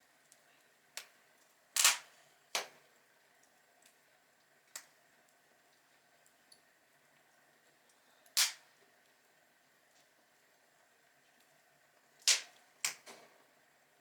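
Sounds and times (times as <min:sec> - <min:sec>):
fire crackling ticks: 0:01.0 - 0:01.6, 0:03.4 - 0:07.3.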